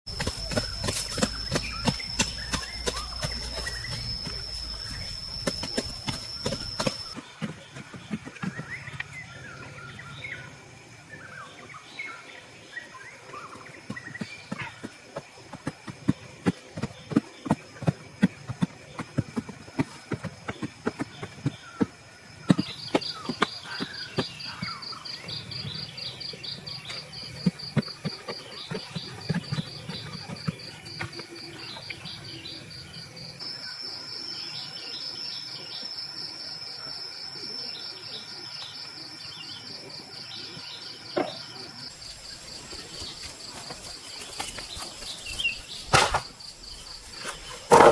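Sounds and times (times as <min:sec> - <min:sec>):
insect chirring: 0:00.1 - 0:07.2, 0:41.9 - 0:47.9.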